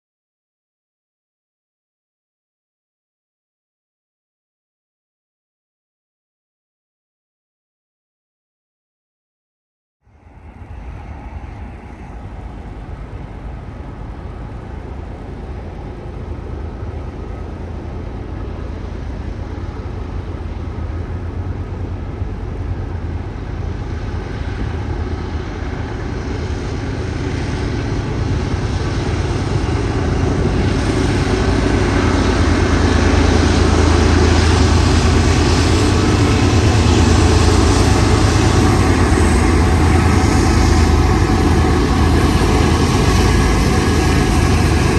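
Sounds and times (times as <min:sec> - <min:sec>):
diesel locomotive engine drone: 0:10.0 - 0:44.9.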